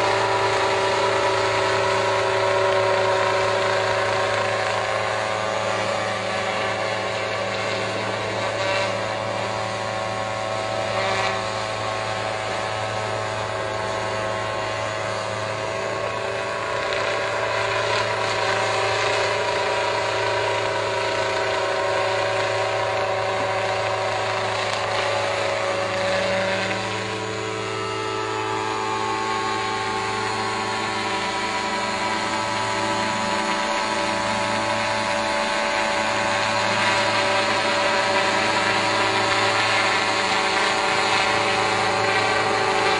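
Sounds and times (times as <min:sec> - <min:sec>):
drone rotors humming: 0:00.0 - 0:42.9.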